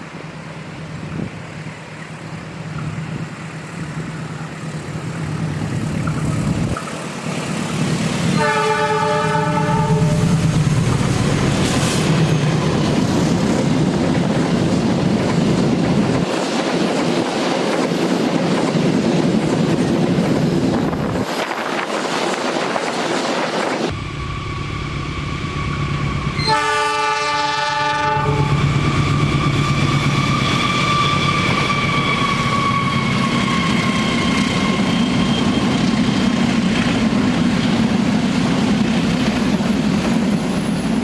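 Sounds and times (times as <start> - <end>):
freight train rumbling by: 0.0 - 41.0
locomotive whine: 0.0 - 41.0
locomotive horn: 8.4 - 10.4, 26.3 - 33.4.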